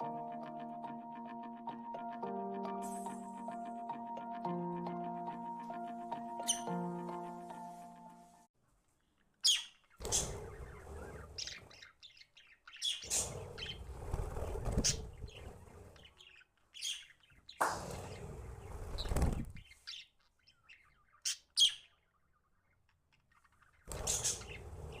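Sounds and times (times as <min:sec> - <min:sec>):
budgerigars chirping: 0:06.4 - 0:06.8, 0:09.4 - 0:13.8, 0:14.6 - 0:17.6, 0:18.5 - 0:25.0
wings flapping: 0:13.1 - 0:15.7, 0:17.6 - 0:19.6.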